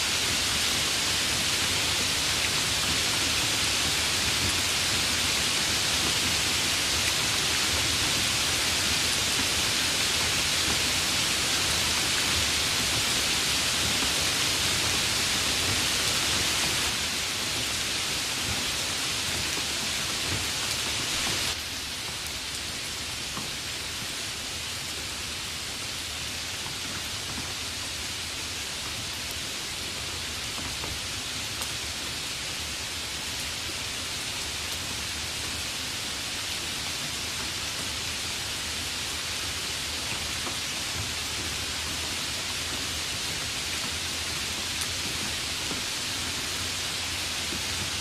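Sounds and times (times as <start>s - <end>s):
steady rain hiss: 0.0s - 48.0s.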